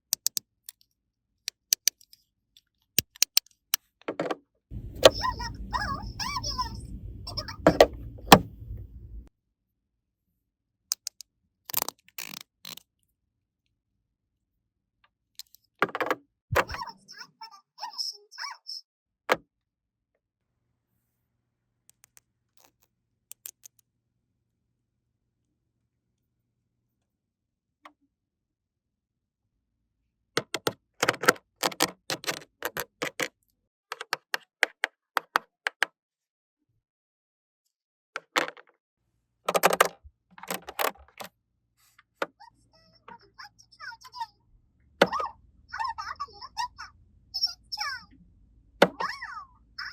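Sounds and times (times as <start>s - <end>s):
plastic toy pieces clicking: 0.1s - 0.9s, 1.5s - 2.2s, 3.0s - 3.9s, 10.9s - 12.9s, 21.9s - 23.8s, 30.4s - 33.3s, 33.9s - 35.9s, 39.5s - 41.3s.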